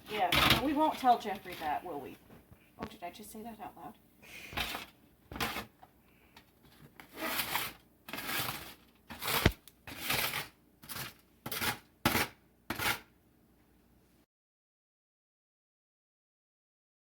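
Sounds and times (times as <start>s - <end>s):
corn nuts crunching: 7.1s - 11.8s.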